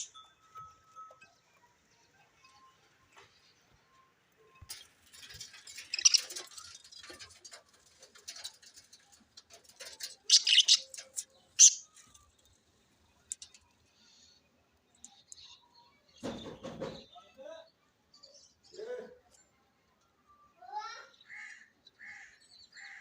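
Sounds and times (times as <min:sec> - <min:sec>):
budgerigars chirping and chattering: 0:04.7 - 0:12.4.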